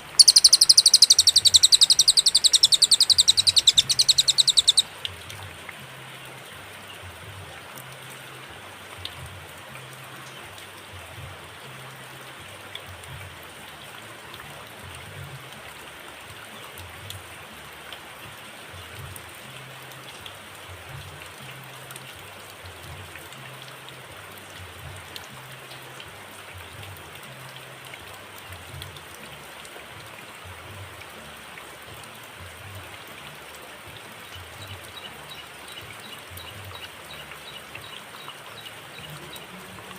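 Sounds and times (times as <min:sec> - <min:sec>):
steady background hiss: 0:00.0 - 0:08.8
faint ticks: 0:00.2 - 0:05.4.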